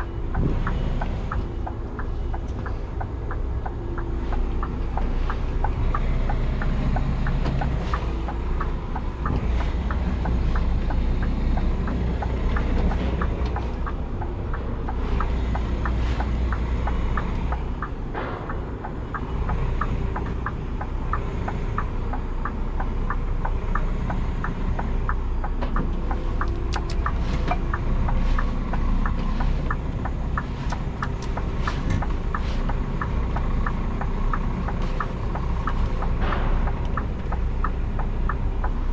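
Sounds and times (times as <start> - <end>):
light ticking: 0.0 - 38.9
truck diesel engine droning: 0.0 - 38.9.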